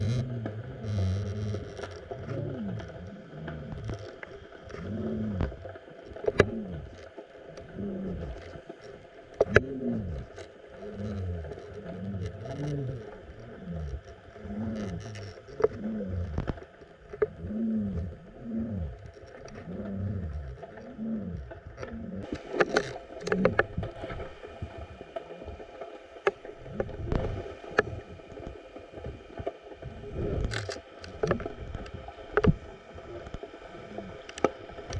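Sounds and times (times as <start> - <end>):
underwater moaning sweeps: 0.0 - 34.9.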